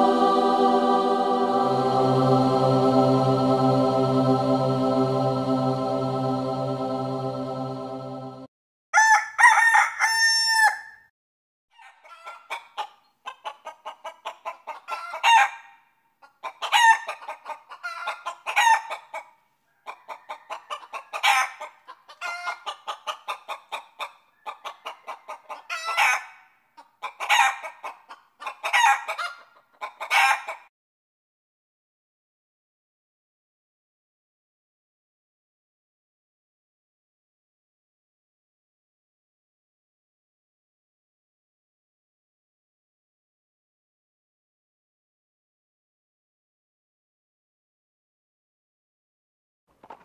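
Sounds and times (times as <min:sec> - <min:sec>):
droning chant-like music: 0:00.0 - 0:08.5
rooster crowing: 0:09.0 - 0:11.0, 0:19.8 - 0:21.6
chickens clucking: 0:11.8 - 0:15.5, 0:16.2 - 0:30.7, 0:49.8 - 0:50.0.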